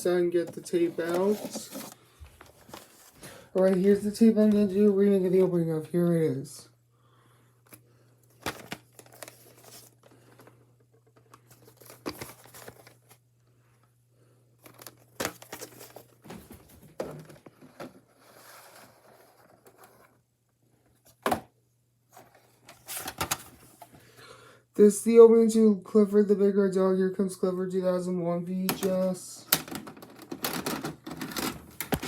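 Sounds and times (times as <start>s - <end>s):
faint steady hum: 0.0s - 32.0s
tape case rustling: 0.4s - 5.5s, 7.7s - 13.2s, 14.6s - 20.2s, 22.1s - 24.0s, 28.7s - 32.0s.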